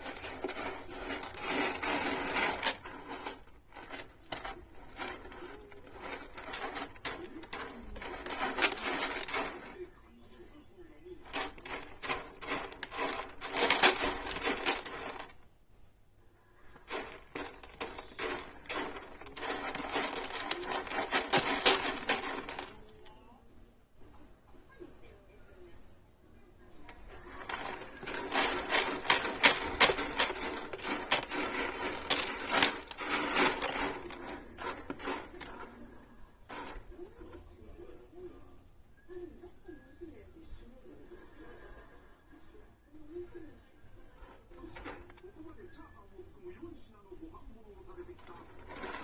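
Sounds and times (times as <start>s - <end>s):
kitten scratching cat litter: 0.0s - 10.6s, 11.2s - 15.5s, 16.6s - 23.2s, 26.7s - 37.8s, 44.1s - 49.0s.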